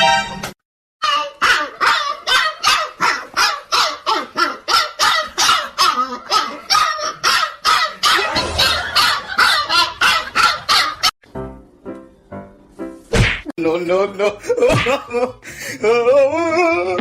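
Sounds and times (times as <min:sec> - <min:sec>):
dog barking: 0:01.4 - 0:11.1.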